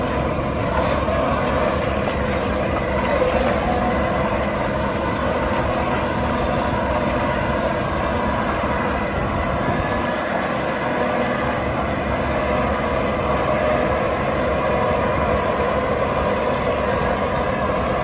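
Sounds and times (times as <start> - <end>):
heavy diesel engines running: 0.0 - 18.0.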